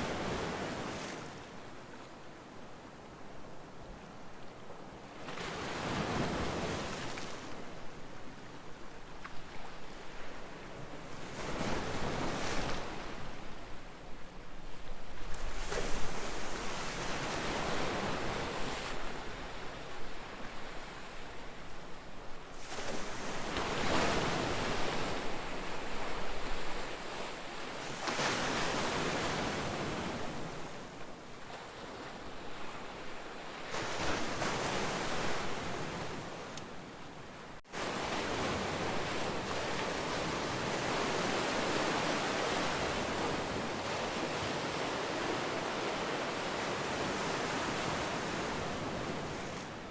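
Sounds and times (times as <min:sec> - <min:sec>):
ocean waves breaking on shore: 0:00.0 - 0:49.9.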